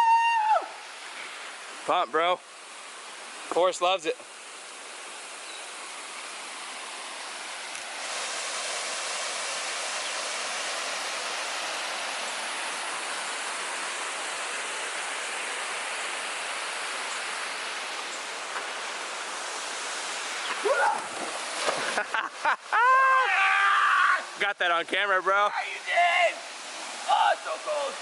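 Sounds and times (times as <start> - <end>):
waterfall pouring into pool: 6.1 - 28.0.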